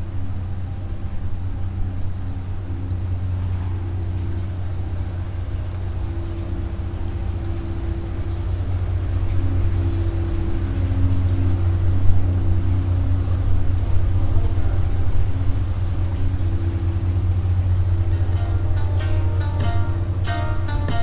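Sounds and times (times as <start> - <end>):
low hum: 0.0 - 21.0
vehicle rumble: 0.0 - 21.0
steady tones: 15.2 - 21.0.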